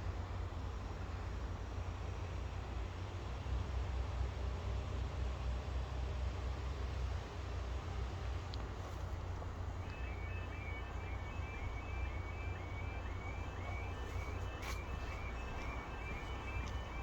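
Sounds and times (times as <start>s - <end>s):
level crossing warning alarm: 9.4s - 17.0s.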